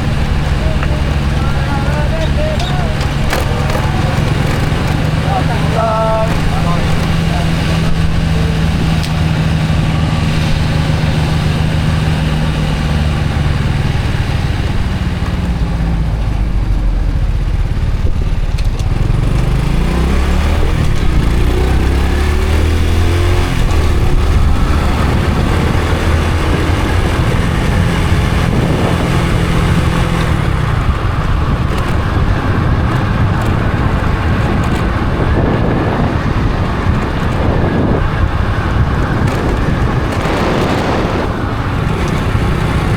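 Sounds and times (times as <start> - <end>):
motorcycle engine accelerating: 0.0 - 42.9.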